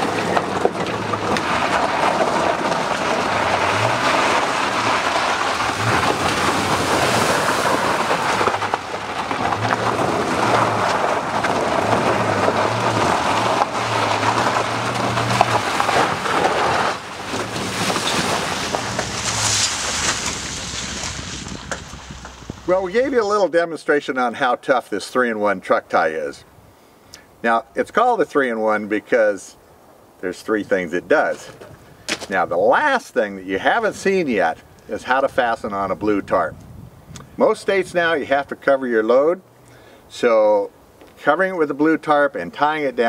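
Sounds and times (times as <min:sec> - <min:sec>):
pickup truck rumbling: 0:00.0 - 0:23.4.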